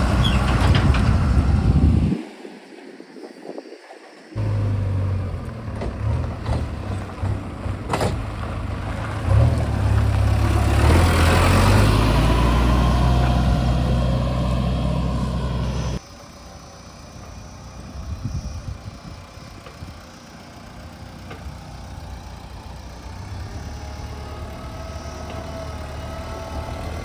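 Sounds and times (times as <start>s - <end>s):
diesel engine running: 0.0s - 2.2s, 4.4s - 27.0s.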